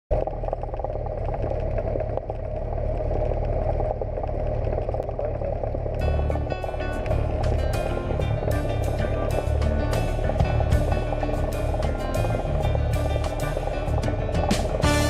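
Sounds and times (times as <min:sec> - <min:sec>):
music: 0:06.0 - 0:15.0.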